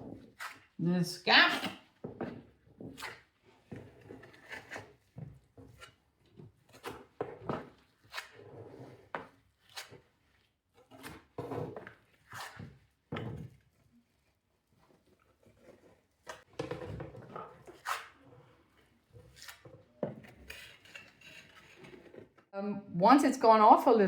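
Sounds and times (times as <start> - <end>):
steel trowel scraping wet plaster: 0.2 - 0.8, 10.9 - 12.8, 17.6 - 22.3.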